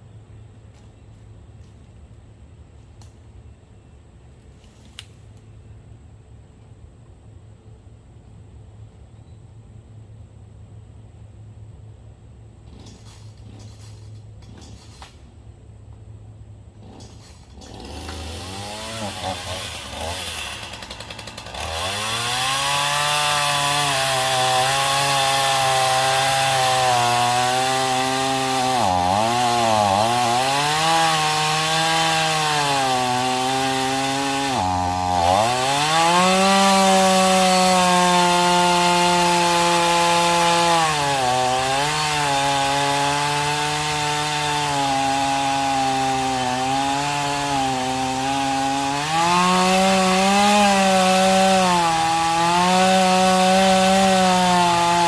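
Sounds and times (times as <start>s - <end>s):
chainsaw cutting wood: 12.6s - 15.2s, 16.7s - 55.0s.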